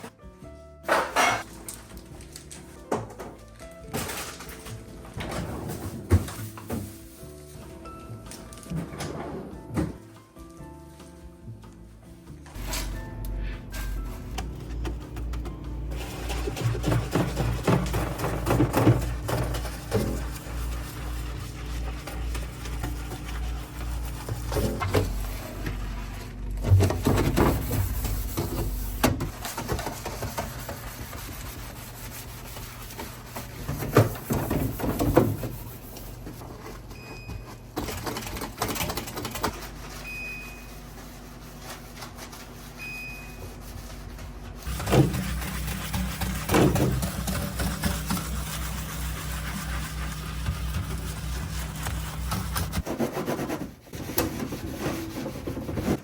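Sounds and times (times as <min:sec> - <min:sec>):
plastic containers clattering: 0:14.2 - 0:20.2.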